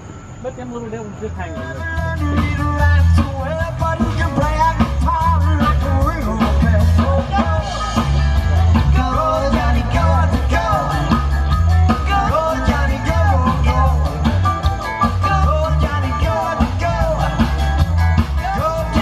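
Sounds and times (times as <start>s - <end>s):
rock band playing: 1.5s - 19.0s
person singing: 1.8s - 19.0s.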